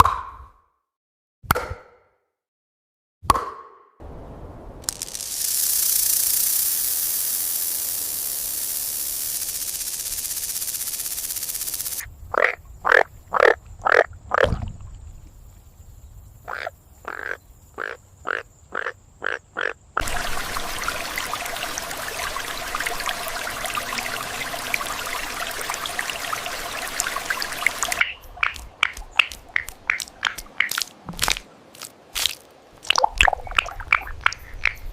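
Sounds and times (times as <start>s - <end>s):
dense crackling hiss: 4.0s - 12.2s
steady hiss: 4.1s - 12.1s
frog croaking: 9.4s - 14.6s, 16.4s - 30.9s.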